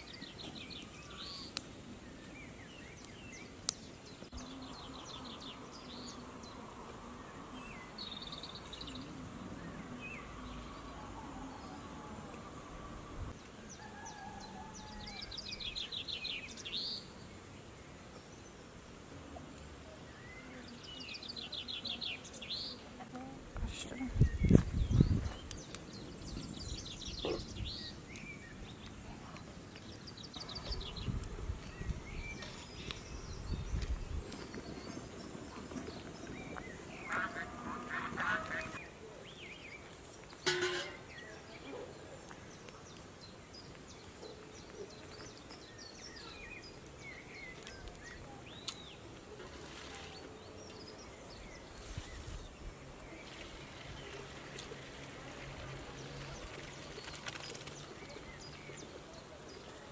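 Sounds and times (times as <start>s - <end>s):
honking bird calls: 37.0s - 38.8s.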